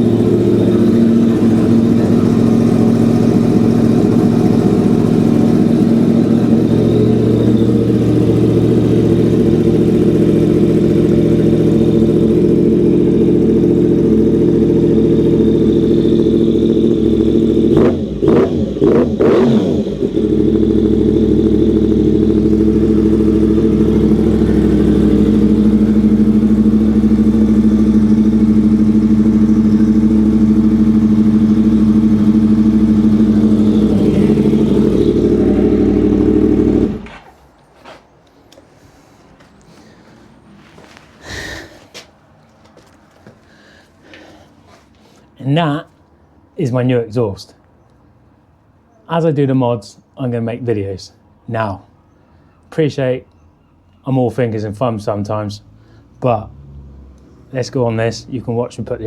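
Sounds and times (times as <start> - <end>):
motorcycle engine idling: 0.0 - 45.4.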